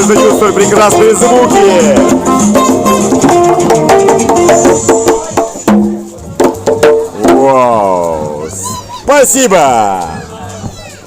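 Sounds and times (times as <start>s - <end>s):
plucked string notes: 0.0s - 8.5s
sharp percussive strikes: 0.0s - 8.5s.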